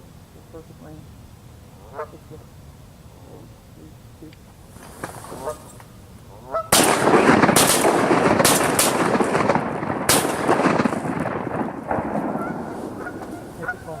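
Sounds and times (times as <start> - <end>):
geese honking: 1.7 - 4.4, 5.2 - 14.0
shotgun blasts: 6.7 - 13.9.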